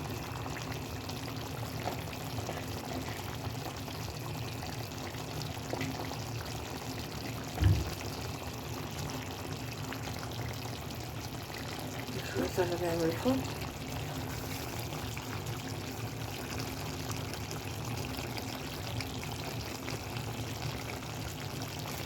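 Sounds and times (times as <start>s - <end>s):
sauce bubbling in pot: 0.0s - 22.0s
short knock: 7.6s - 7.9s.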